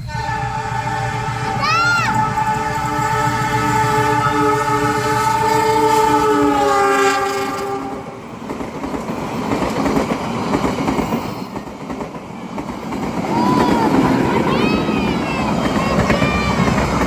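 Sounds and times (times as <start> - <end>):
train horn chord: 0.0 - 8.5
train rumbling past: 0.0 - 17.0.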